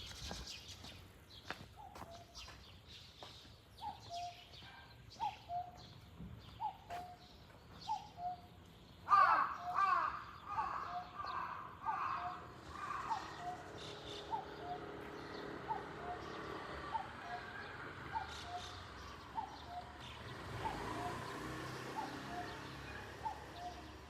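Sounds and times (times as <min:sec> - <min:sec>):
small birds chirping: 0:00.0 - 0:24.0
cuckoo calling: 0:03.8 - 0:24.0
sharper higher bird calls: 0:07.8 - 0:24.0.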